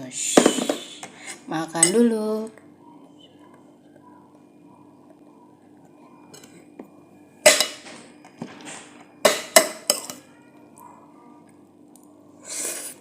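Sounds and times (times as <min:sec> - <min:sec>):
faint steady hum: 0:00.0 - 0:13.0
cutlery clinking on a plate: 0:07.4 - 0:08.4, 0:09.2 - 0:10.2
cutlery scraping a plate: 0:09.2 - 0:10.2.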